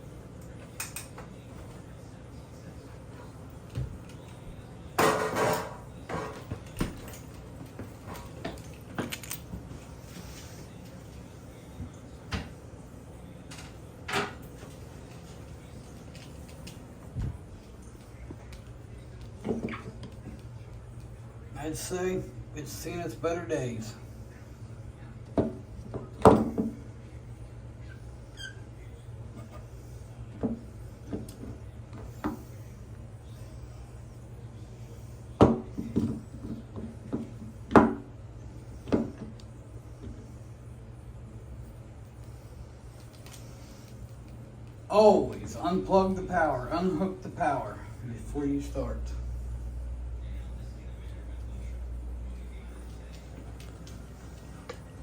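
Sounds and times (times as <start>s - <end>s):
knocks and taps on exhaust fan: 25.3s - 26.8s.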